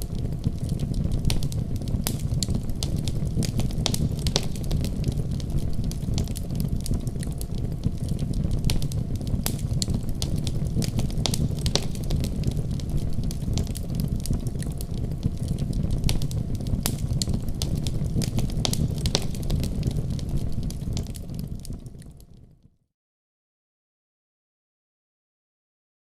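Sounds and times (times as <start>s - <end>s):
fire crackling in fireplace: 0.0s - 22.8s.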